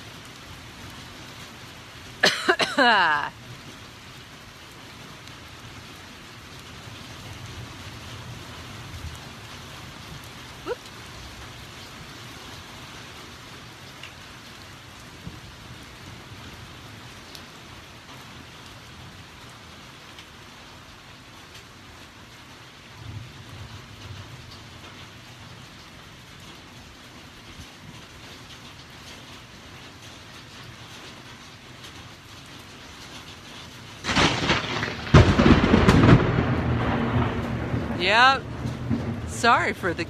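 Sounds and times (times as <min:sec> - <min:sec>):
heavy rain falling: 0:00.0 - 0:40.0
thunder rumbling: 0:34.0 - 0:40.0.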